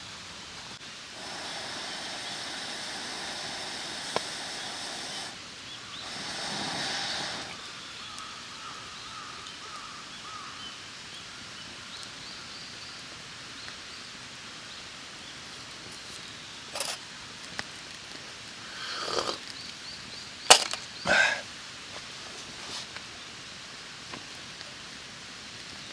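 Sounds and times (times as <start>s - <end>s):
outdoor background noise: 0.0s - 25.9s
faint bird chirps: 1.8s - 10.8s.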